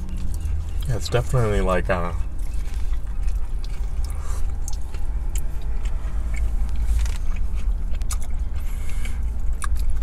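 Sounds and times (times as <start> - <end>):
chewing: 0.0 - 10.0
low rumble inside car: 0.0 - 10.0.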